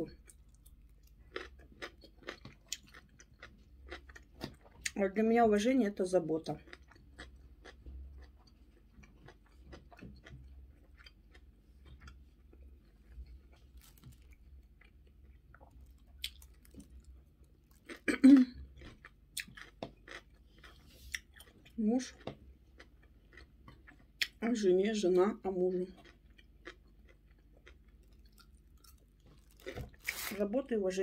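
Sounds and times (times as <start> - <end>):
mouth chewing wetly: 18.8 - 24.4.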